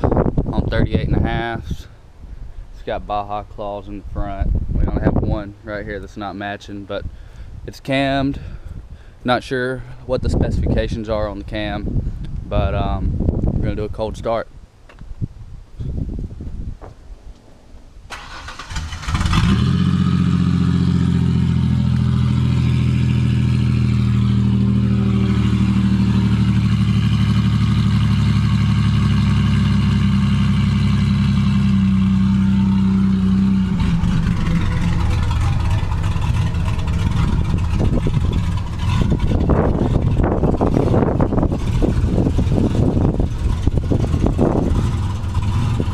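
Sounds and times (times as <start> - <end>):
starter motor cranking: 18.1 - 19.7
car engine idling: 18.1 - 45.9.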